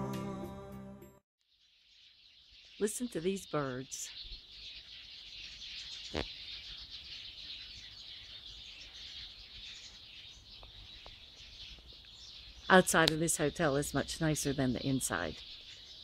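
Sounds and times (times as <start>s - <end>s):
flock of birds chirping: 1.5s - 16.0s.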